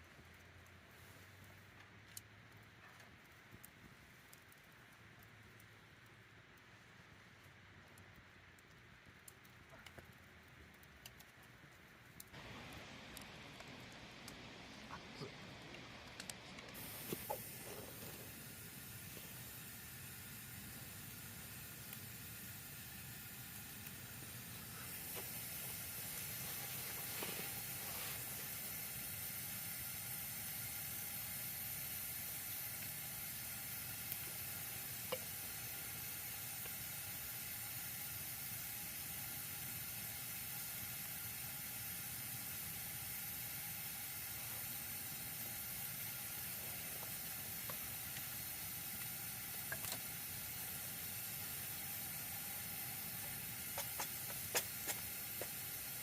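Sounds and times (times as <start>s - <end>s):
campfire sizzling hiss: 0.0s - 56.0s
fire pops: 7.3s - 56.0s.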